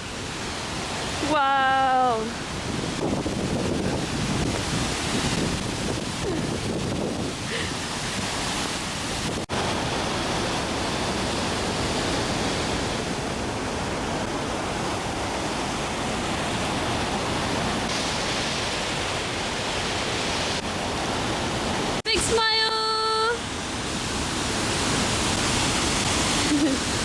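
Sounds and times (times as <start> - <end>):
waterfall roaring: 0.0 - 27.0
wind noise on microphone: 1.9 - 22.4.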